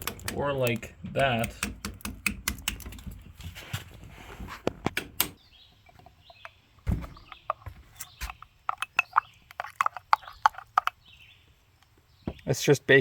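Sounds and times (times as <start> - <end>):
sharp clicks and light knocks: 0.0 - 3.4
small metal clinks: 8.3 - 11.0.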